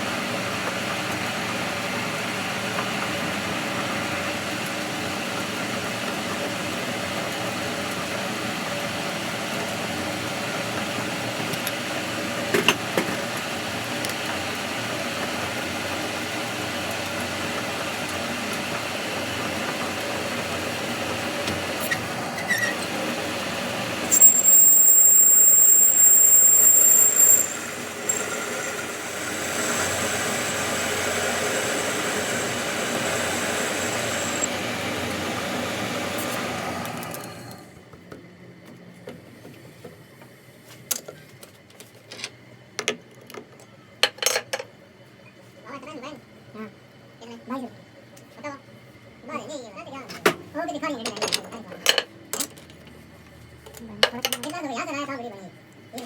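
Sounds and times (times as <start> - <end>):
workshop machinery running: 0.0 - 40.7
loud high-pitched squeal: 24.1 - 34.5.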